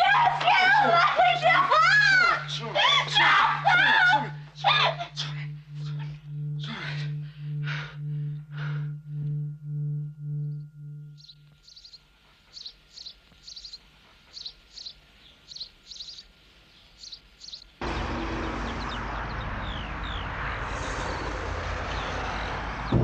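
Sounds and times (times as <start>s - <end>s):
small bird chirping: 10.3s - 22.4s
car driving: 17.8s - 23.0s.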